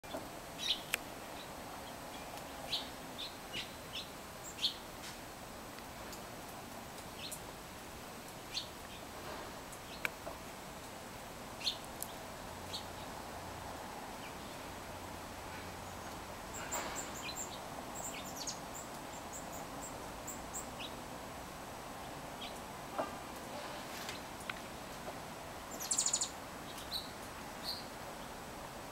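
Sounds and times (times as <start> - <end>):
faint background noise: 0.0 - 28.9
small birds chirping: 0.1 - 4.9, 7.0 - 7.4, 8.4 - 10.4, 11.6 - 13.2, 14.1 - 14.8, 15.4 - 21.1, 22.0 - 22.7, 25.6 - 28.4.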